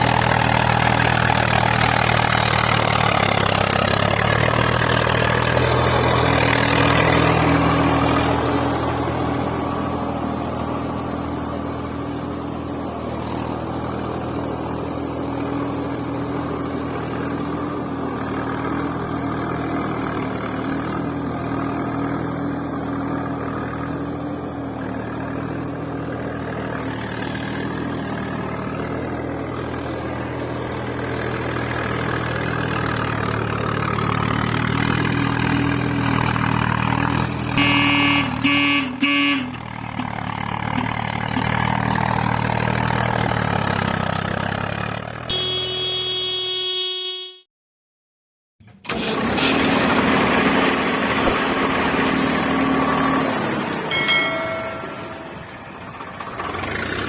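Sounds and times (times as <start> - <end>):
vehicle engine running: 0.0 - 47.4, 49.7 - 57.0
horn blasts: 37.6 - 39.8, 45.3 - 47.5.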